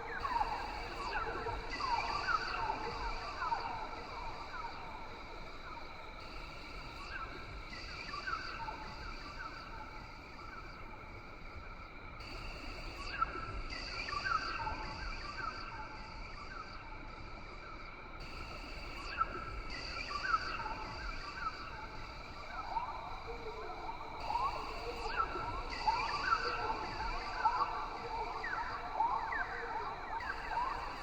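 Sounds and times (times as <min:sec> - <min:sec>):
insects droning: 0:00.0 - 0:13.2, 0:14.0 - 0:31.0.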